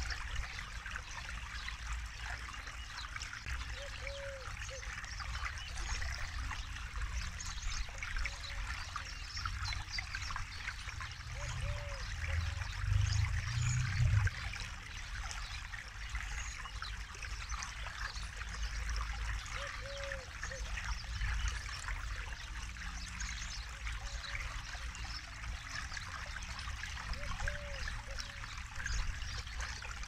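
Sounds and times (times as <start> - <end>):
river trickling over stones: 0.0 - 30.0
low rumble: 12.3 - 14.5.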